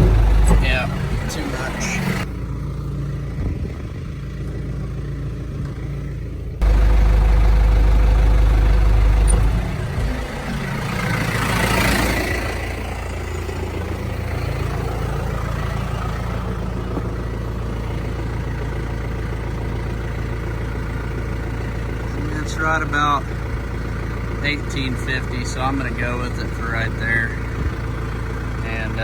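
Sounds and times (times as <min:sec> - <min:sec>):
loud low rumble: 0:00.0 - 0:02.3, 0:06.6 - 0:18.4
tractor engine idling: 0:00.0 - 0:29.0.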